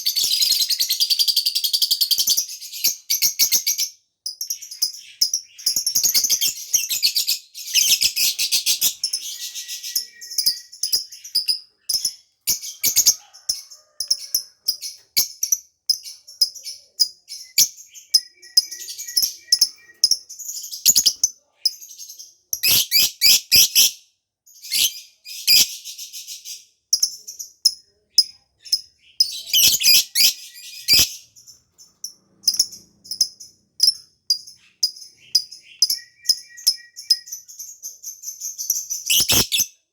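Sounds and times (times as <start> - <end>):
bird chirping and chattering: 0.0 - 39.9.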